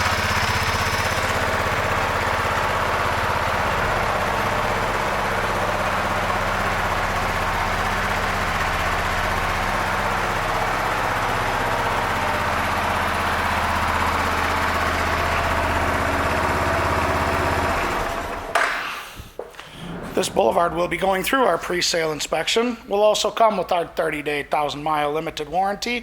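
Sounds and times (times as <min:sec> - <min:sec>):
motorcycle engine idling: 0:00.0 - 0:18.6.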